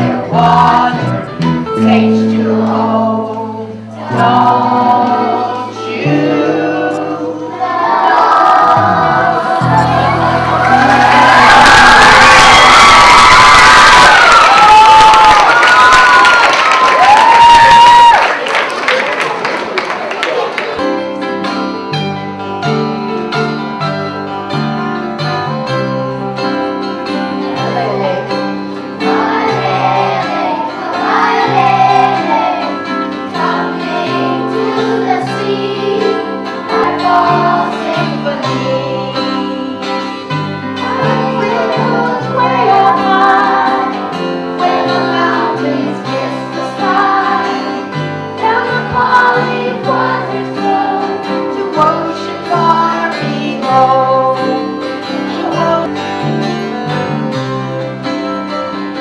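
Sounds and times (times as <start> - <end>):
plucked bass line: 0.0 - 3.3, 4.0 - 7.3, 8.5 - 12.2
strummed acoustic guitar: 0.0 - 12.2, 20.8 - 59.0
wavering melody line: 6.6 - 11.6.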